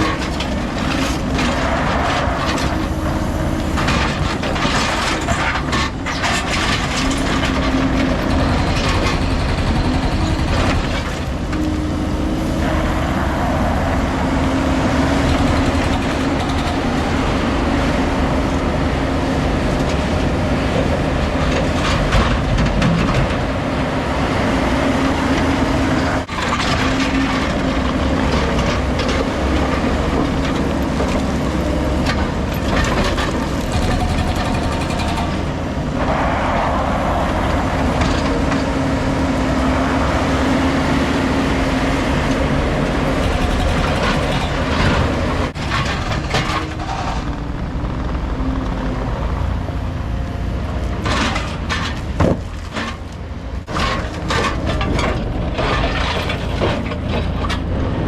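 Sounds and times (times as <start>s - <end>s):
knocks and clatter of work: 0.0s - 12.2s, 14.8s - 19.0s, 25.4s - 36.2s, 42.3s - 48.1s, 50.9s - 57.9s
diesel machinery droning: 0.0s - 21.7s, 28.3s - 50.8s.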